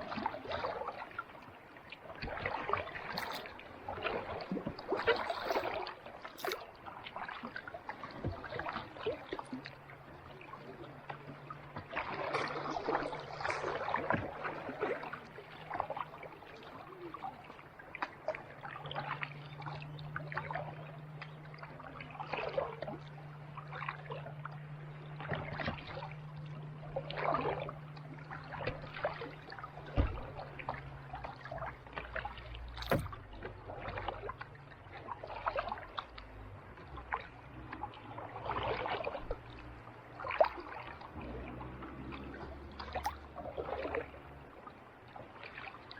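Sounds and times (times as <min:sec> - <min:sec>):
paddle splashing in water: 0:00.0 - 0:45.9.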